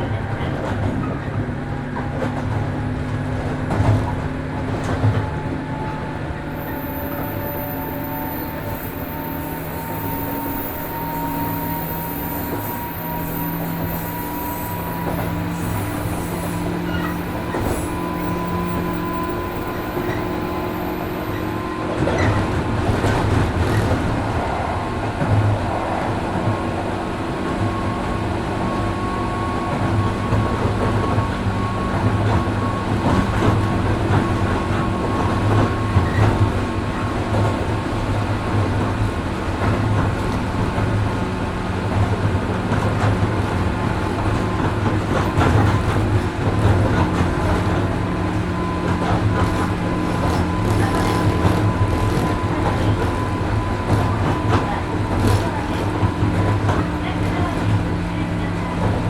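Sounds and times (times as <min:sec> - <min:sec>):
rail and wheel noise: 0:00.0 - 0:59.0
train motor and gear whine: 0:00.0 - 0:59.0.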